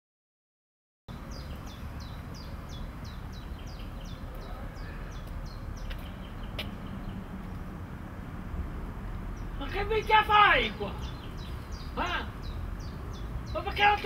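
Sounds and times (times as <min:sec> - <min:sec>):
small bird calling: 0:01.2 - 0:07.7, 0:09.3 - 0:14.0.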